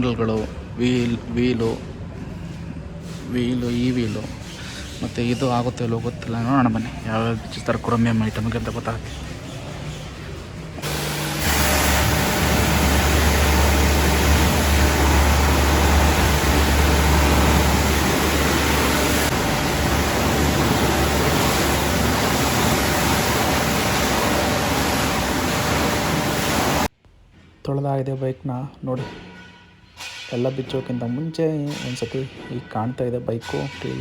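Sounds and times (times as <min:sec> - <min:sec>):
pressure washer motor hum: 0:10.8 - 0:26.9
water spray hissing: 0:10.8 - 0:26.9.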